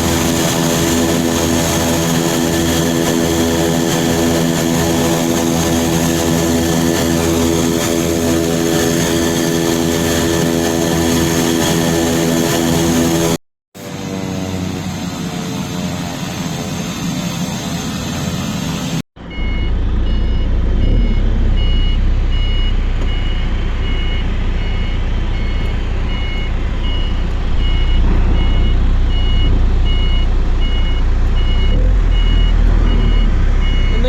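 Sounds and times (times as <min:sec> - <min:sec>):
tow vehicle engine rumble: 0:00.0 - 0:13.4, 0:14.0 - 0:34.0
turboprop engine: 0:00.0 - 0:34.0
reversing alarm beeping: 0:19.2 - 0:34.0.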